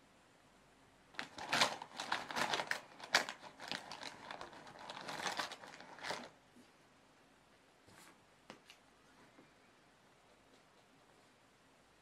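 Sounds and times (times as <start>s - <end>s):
fabric rustling: 1.2s - 6.7s.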